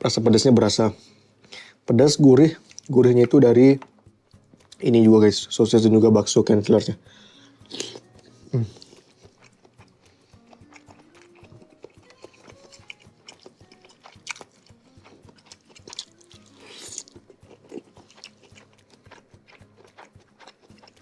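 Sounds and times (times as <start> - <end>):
soft background music: 0.0 - 21.0
person chewing and biting: 7.6 - 21.0.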